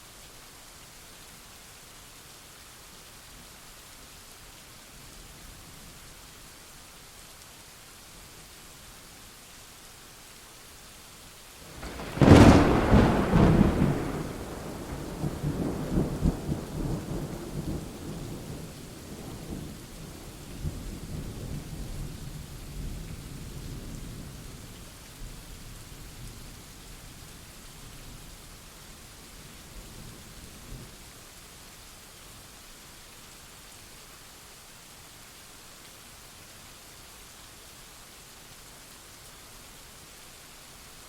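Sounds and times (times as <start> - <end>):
steady rain: 0.0 - 41.0
thunder crack and rumble: 11.8 - 18.6.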